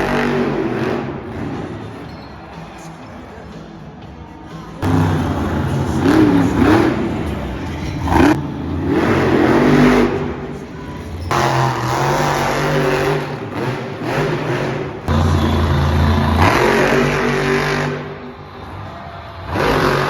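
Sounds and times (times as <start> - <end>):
monster truck engine revving: 0.0 - 3.0, 4.6 - 20.0.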